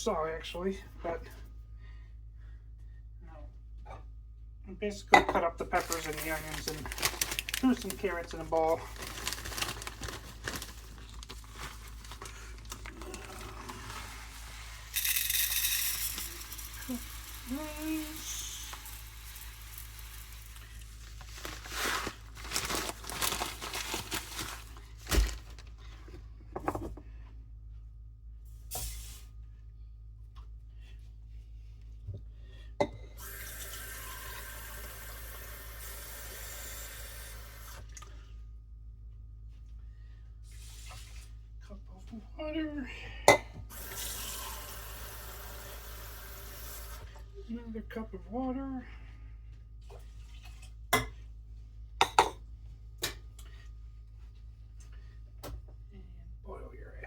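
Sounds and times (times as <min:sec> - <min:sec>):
kitchen tap running: 0:12.3 - 0:23.6, 0:33.2 - 0:37.9, 0:43.7 - 0:47.1.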